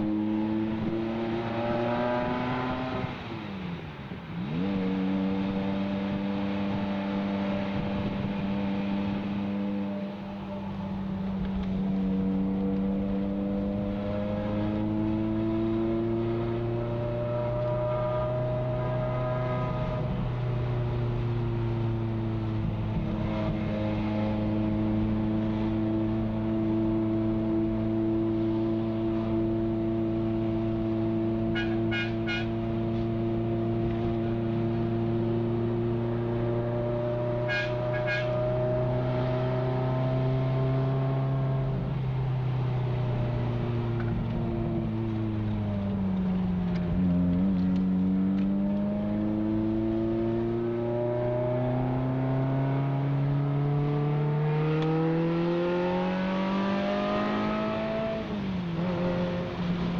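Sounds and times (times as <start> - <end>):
car engine under load: 0.0 - 37.4, 38.4 - 59.9.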